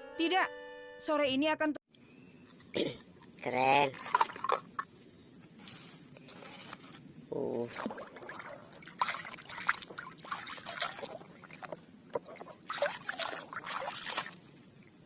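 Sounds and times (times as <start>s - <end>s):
water splashing and trickling: 2.4s - 4.9s, 7.3s - 15.0s.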